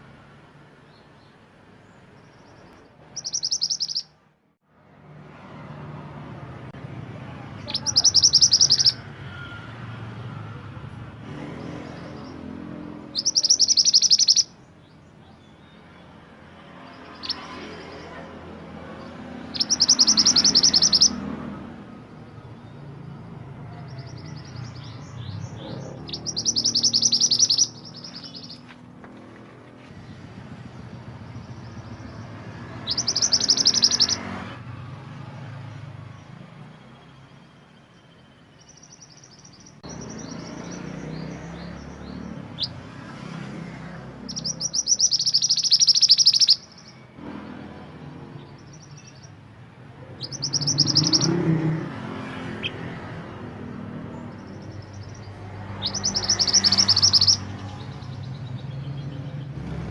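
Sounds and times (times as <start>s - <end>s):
songbird fast high trill: 3.1s - 4.2s, 7.6s - 9.0s, 13.1s - 14.6s, 19.5s - 21.2s, 25.5s - 28.6s, 32.8s - 34.2s, 44.3s - 47.0s, 50.2s - 51.5s, 54.8s - 57.5s
bird soft short chirps: 3.2s - 4.1s.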